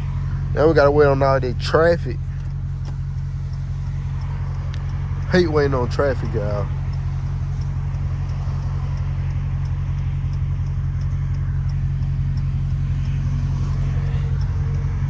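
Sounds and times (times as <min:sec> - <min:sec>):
car engine idling: 0:00.0 - 0:15.0
faint light ticking: 0:00.1 - 0:15.0.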